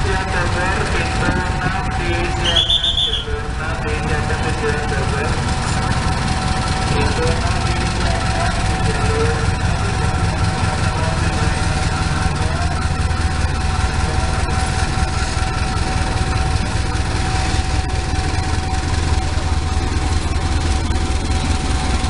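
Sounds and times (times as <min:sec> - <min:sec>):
locomotive low drone: 0:00.0 - 0:22.0
train noise on track: 0:00.0 - 0:22.0.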